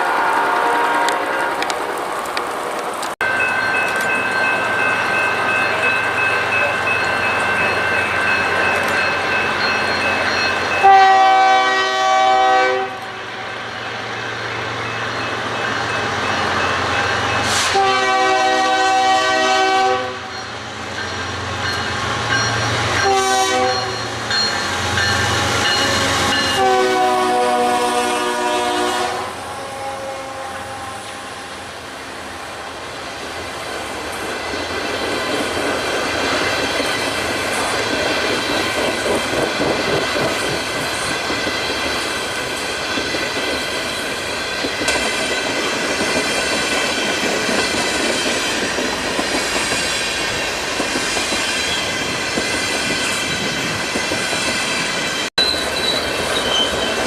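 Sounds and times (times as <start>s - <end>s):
train horn blasts: 0.0s - 2.0s, 10.8s - 13.4s, 17.4s - 20.3s, 23.0s - 24.1s, 25.7s - 31.7s
train rolling on tracks: 0.0s - 57.0s.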